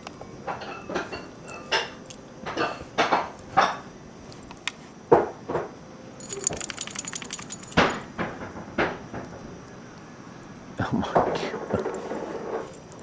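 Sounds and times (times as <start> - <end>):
small metal pieces jingling: 6.2 - 8.1.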